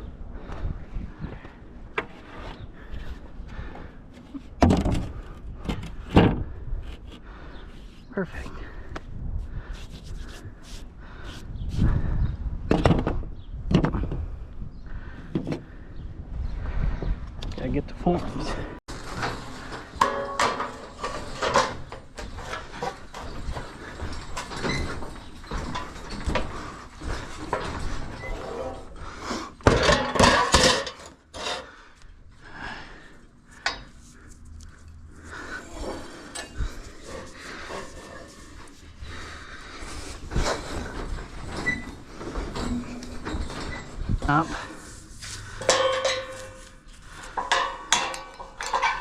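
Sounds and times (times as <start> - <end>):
objects knocking and clattering: 18.9 - 28.2, 29.6 - 31.7, 45.5 - 49.0.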